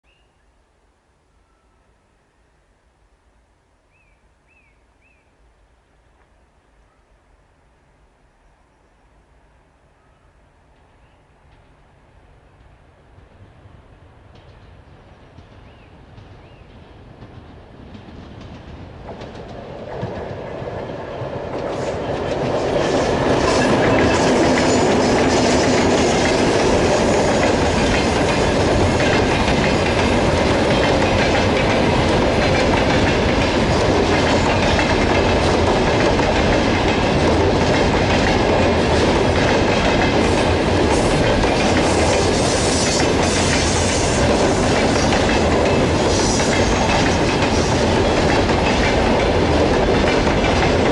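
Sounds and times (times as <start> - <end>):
train wheels clattering over rail joints: 14.3 - 50.9.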